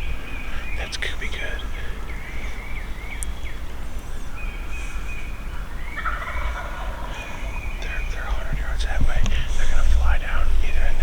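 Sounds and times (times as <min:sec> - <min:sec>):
small birds chirping: 0:00.0 - 0:11.0
turkey gobbling: 0:06.0 - 0:07.6
low steady rumble: 0:06.8 - 0:11.0.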